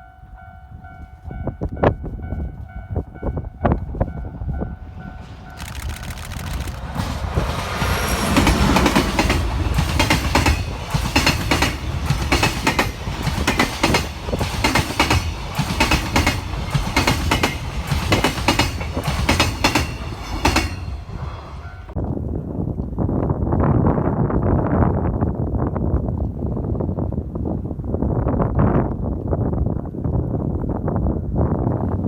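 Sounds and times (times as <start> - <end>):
freight train rumbling past: 0.0 - 22.0
wheels clacking over rail joints: 5.1 - 22.0.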